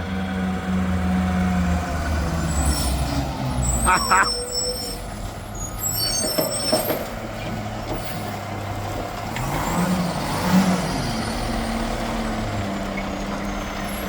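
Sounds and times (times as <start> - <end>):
diesel truck engine revving: 0.0 - 14.0.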